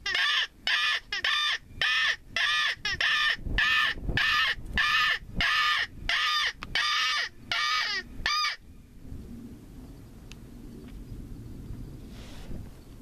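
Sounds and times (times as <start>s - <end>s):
harsh crow-like predator call: 0.0s - 8.6s.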